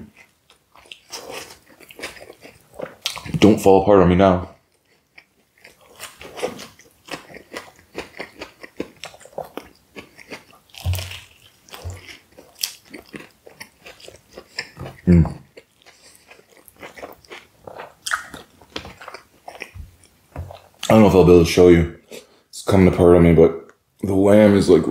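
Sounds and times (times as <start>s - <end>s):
biting and chewing food: 0.0s - 3.6s, 4.5s - 21.0s
wet mouth clicks and smacks: 18.0s - 19.2s.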